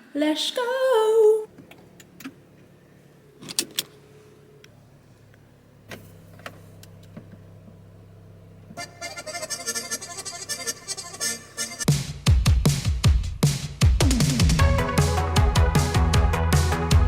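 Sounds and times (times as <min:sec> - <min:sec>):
car engine idling: 0:04.1 - 0:11.9
music: 0:10.5 - 0:17.0.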